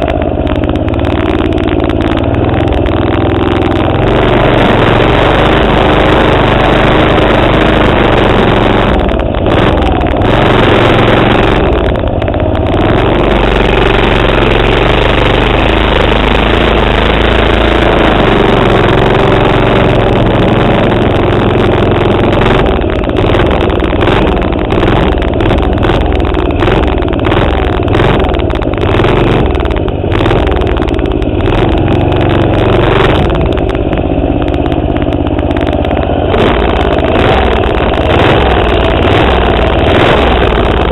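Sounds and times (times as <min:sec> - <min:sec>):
small engine revving loudly: 0:03.9 - 0:12.0, 0:12.7 - 0:30.6, 0:31.4 - 0:33.5, 0:36.3 - 0:40.9.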